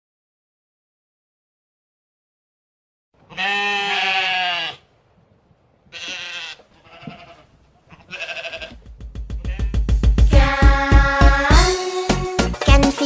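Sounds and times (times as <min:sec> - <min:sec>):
livestock bleating: 0:03.3 - 0:04.9, 0:05.9 - 0:08.8, 0:09.4 - 0:09.8
upbeat children's music: 0:09.1 - 0:13.0.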